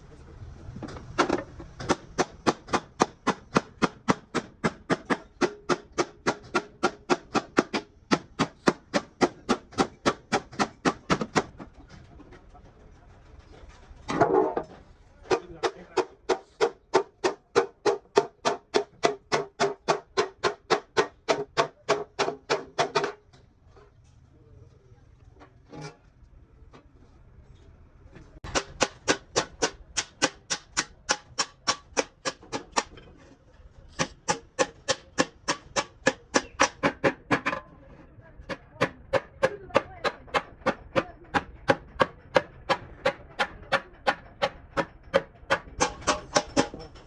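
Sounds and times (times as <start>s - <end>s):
hammer beating on metal tank: 1.2s - 11.5s, 15.3s - 23.2s, 28.4s - 33.0s, 34.0s - 37.6s, 38.5s - 47.0s.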